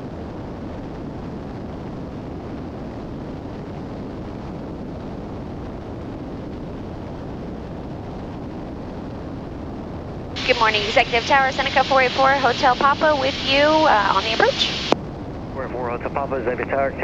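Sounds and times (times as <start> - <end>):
rushing air in aircraft cabin: 0.0 - 17.0
twin piston engines droning: 10.4 - 14.9.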